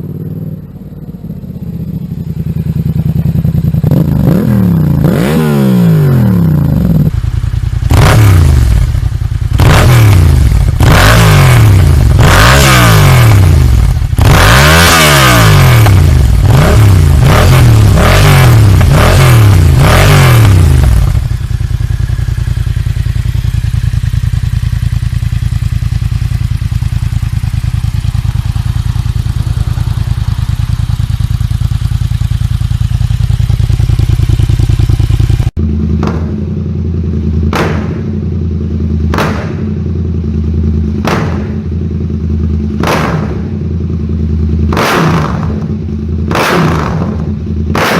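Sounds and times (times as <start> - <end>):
motorcycle engine revving and idling: 0.0 - 47.9.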